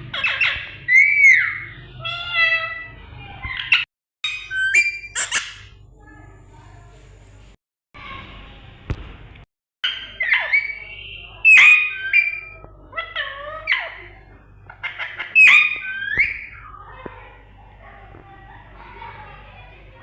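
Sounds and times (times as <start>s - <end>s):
parrot squawking and whistling: 4.3s - 5.7s, 15.4s - 16.5s.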